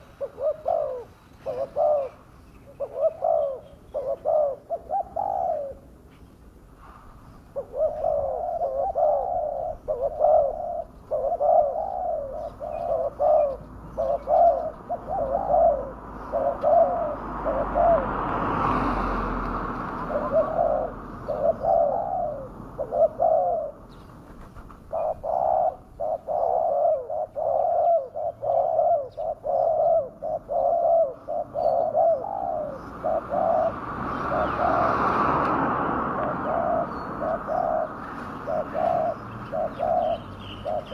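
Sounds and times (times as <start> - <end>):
dove cooing: 0.0 - 18.8, 19.7 - 40.9.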